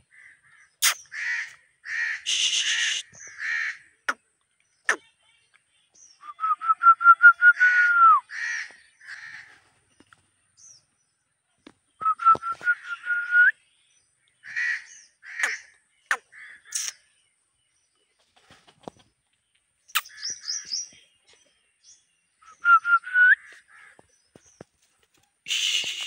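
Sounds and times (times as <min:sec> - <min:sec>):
crows cawing: 0:00.0 - 0:03.9, 0:08.3 - 0:09.6, 0:14.4 - 0:15.7, 0:16.3 - 0:16.8, 0:23.4 - 0:24.1
whistled bird notes: 0:02.3 - 0:03.4, 0:06.0 - 0:08.3, 0:11.9 - 0:13.7, 0:19.9 - 0:21.0, 0:22.4 - 0:23.6, 0:25.5 - 0:26.0.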